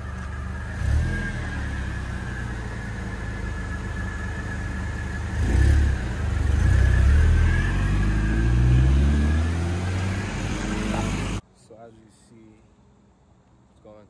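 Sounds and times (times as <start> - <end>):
car engine revving: 0.0 - 11.4.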